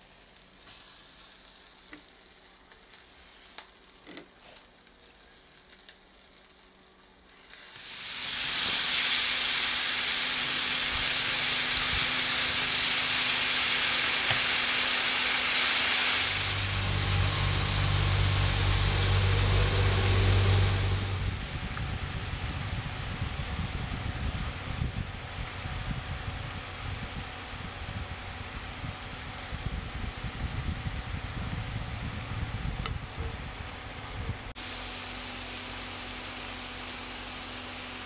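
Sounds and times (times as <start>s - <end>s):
chicken sizzling in hot oil: 0.0s - 31.3s, 34.5s - 38.0s
low steady hum: 16.2s - 34.6s.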